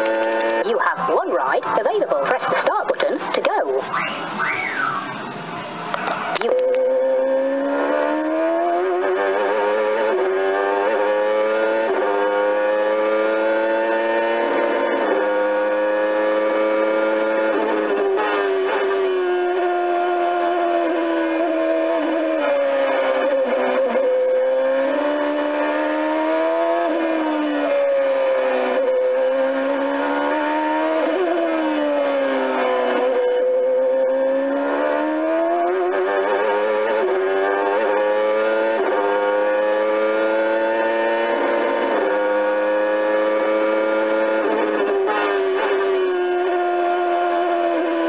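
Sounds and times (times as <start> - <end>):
electronic truck engine sound effect: 0.0 - 7.0
synthesized truck engine from speaker: 0.0 - 48.0.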